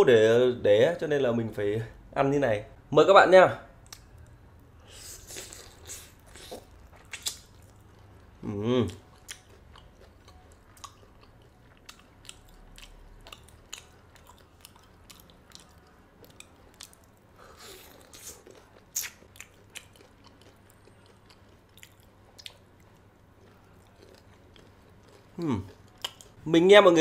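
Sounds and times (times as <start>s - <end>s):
small mouth clicks: 5.2s - 7.5s, 18.1s - 19.5s.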